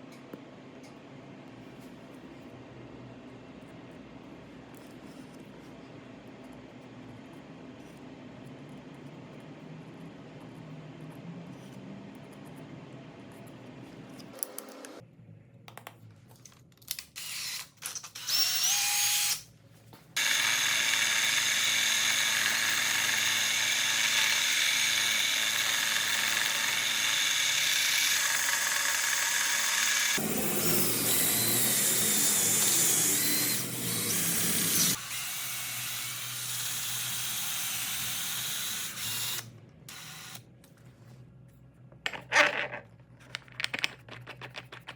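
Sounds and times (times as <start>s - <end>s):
power tool motor whining: 20.2s - 40.4s.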